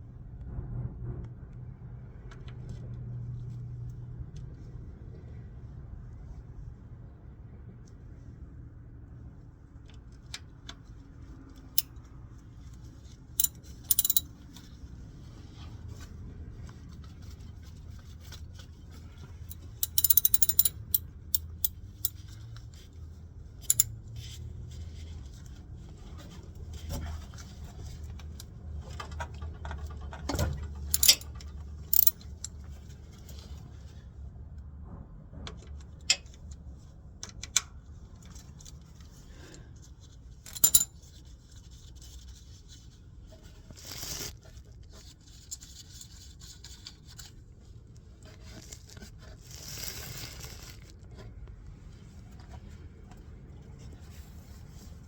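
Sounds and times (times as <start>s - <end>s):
metal hand tools clinking: 13.4s - 14.2s, 19.8s - 22.2s, 23.7s - 23.9s, 31.0s - 31.3s, 31.9s - 32.1s, 40.5s - 40.9s.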